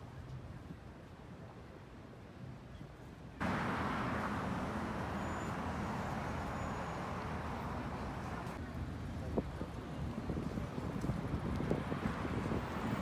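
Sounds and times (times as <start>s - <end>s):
vehicle traffic roar: 3.4s - 13.0s.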